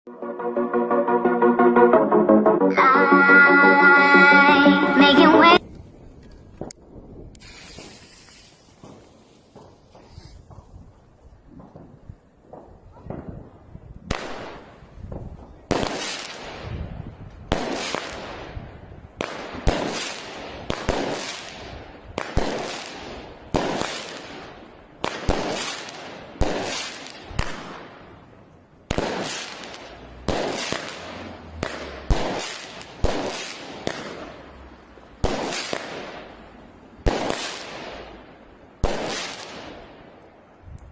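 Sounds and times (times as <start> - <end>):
firework battery firing: 6.6 - 10.7, 17.5 - 27.8, 28.9 - 34.4, 37.0 - 38.2.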